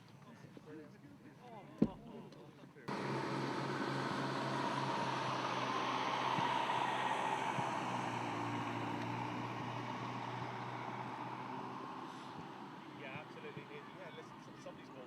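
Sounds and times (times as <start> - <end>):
machine running with low hum: 2.9 - 10.1.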